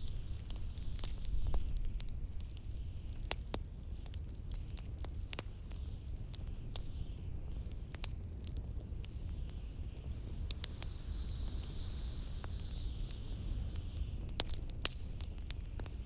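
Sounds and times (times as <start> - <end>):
wood fire crackling and popping: 0.0 - 16.0
faint hiss: 9.6 - 14.1.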